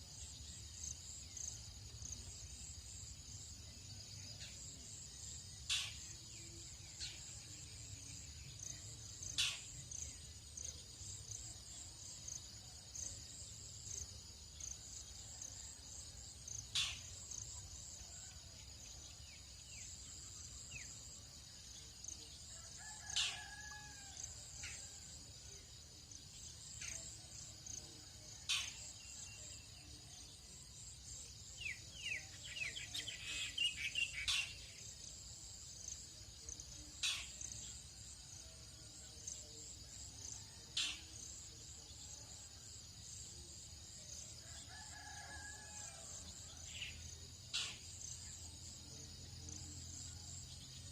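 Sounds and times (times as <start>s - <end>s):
insects trilling: 0.0s - 50.9s
distant rooster crowing: 22.6s - 24.5s, 44.6s - 46.3s.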